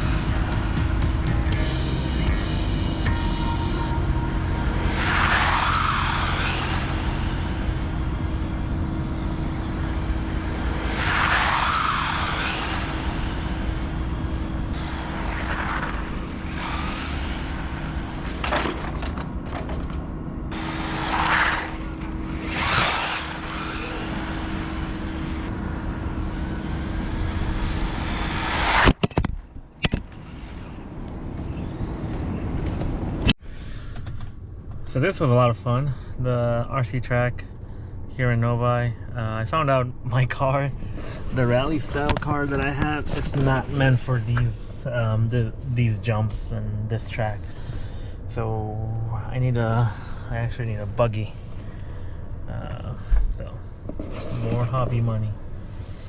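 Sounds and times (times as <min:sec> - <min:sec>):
steady low rumble: 0:00.0 - 0:29.0, 0:30.8 - 0:56.0
radio-controlled cars passing: 0:00.0 - 0:29.1, 0:39.7 - 0:48.3.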